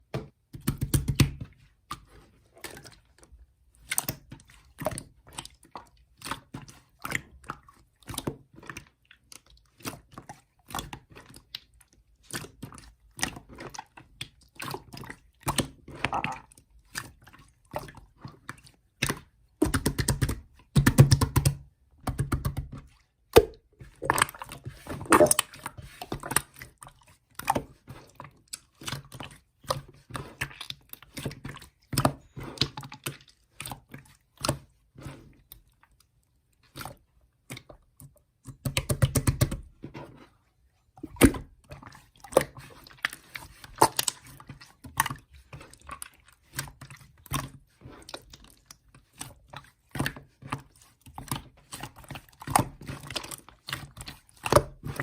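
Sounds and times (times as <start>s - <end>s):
irregular clicks and taps: 0.1s - 1.5s.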